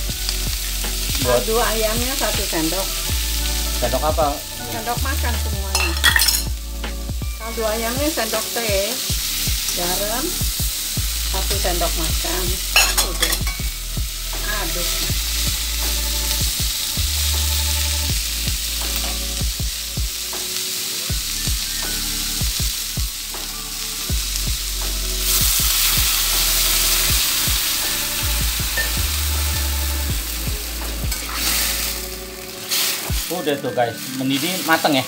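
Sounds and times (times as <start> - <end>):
vegetables sizzling in a wok: 0.0 - 35.0
metal spatula scraping a wok: 31.1 - 33.1.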